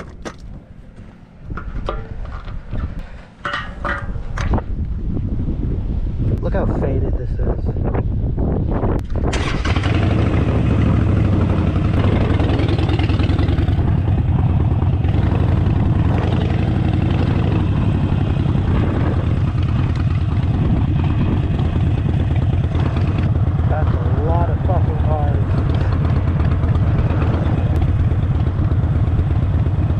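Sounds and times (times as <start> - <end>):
motorcycle engine starting and idling: 9.0 - 29.9.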